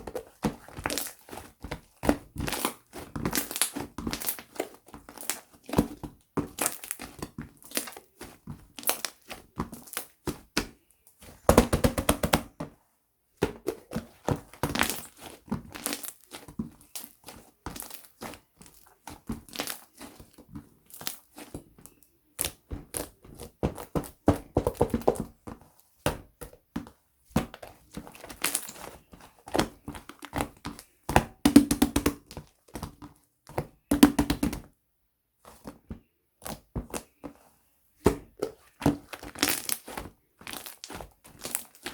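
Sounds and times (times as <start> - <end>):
hands squishing slime: 0.0 - 12.7, 13.4 - 34.6, 35.4 - 41.9.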